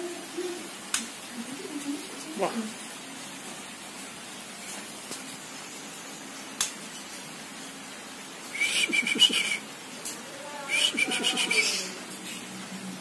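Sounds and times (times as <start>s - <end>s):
songbird whistling: 8.6s - 9.6s, 10.7s - 12.0s.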